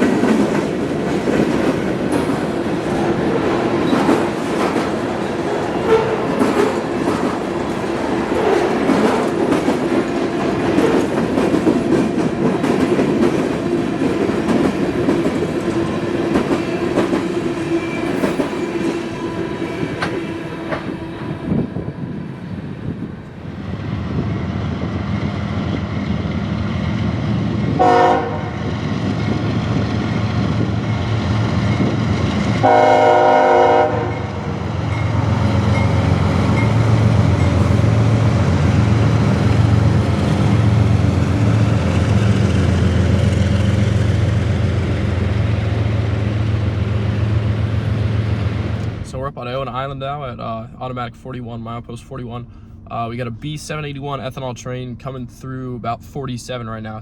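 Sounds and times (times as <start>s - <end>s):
train wheels clattering on rails: 0.0s - 21.6s, 24.2s - 33.0s, 34.0s - 49.0s
locomotive engine rumble: 0.0s - 57.0s
train horn blast: 27.8s - 28.7s, 32.6s - 34.6s.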